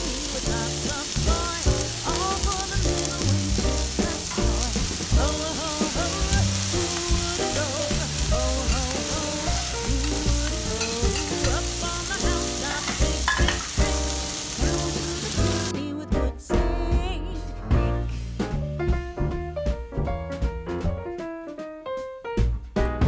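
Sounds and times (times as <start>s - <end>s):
steak sizzling on griddle: 0.0s - 15.7s
background music: 0.0s - 23.0s.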